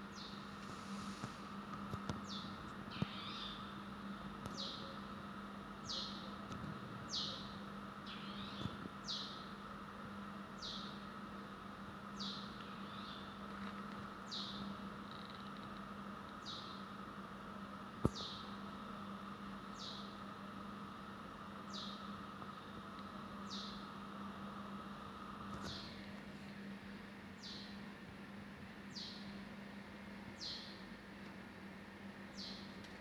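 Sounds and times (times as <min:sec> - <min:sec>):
steady low hum: 0:00.0 - 0:33.0
bird chirping: 0:02.2 - 0:03.7, 0:07.1 - 0:09.4, 0:10.6 - 0:11.0, 0:12.2 - 0:13.4, 0:14.3 - 0:15.6, 0:18.1 - 0:18.5, 0:21.7 - 0:22.0, 0:23.4 - 0:23.8, 0:27.4 - 0:27.8, 0:30.4 - 0:30.8
bird twittering: 0:02.3 - 0:03.7, 0:08.1 - 0:09.4.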